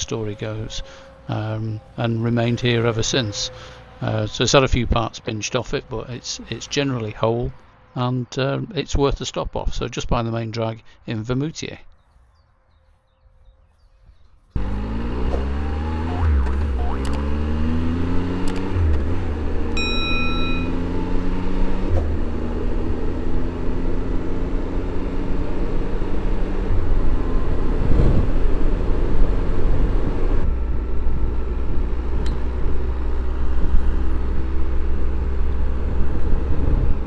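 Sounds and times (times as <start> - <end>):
motorcycle engine accelerating: 14.5 - 37.0
short beep: 19.7 - 21.2.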